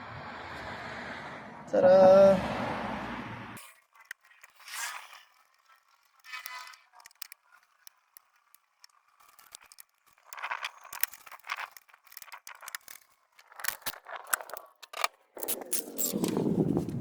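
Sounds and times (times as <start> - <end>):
metal tools clinking and scraping: 3.6 - 16.4
mechanical rattling: 3.6 - 17.0.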